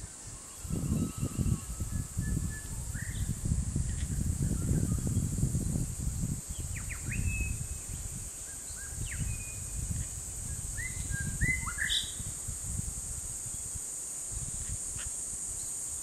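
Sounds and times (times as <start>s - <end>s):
steady high hiss: 0.0s - 16.0s
birds whistling: 10.8s - 12.2s.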